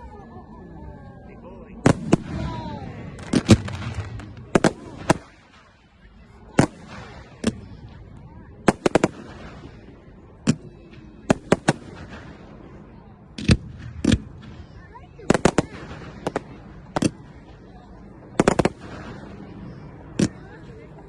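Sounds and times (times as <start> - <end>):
firework bangs: 1.8 - 17.5, 18.4 - 20.6.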